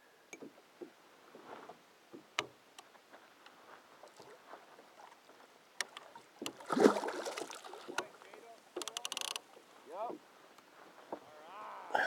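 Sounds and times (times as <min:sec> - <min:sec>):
water lapping against boat hull: 0:03.2 - 0:11.3.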